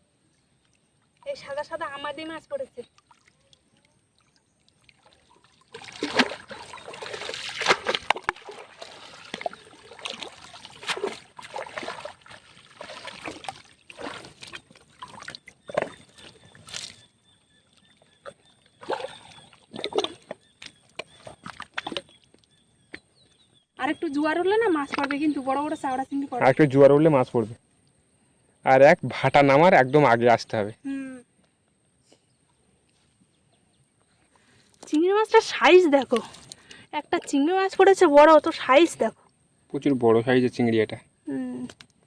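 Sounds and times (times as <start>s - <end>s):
water splashing and sloshing: 0.6s - 23.1s, 24.6s - 26.1s, 34.4s - 39.4s.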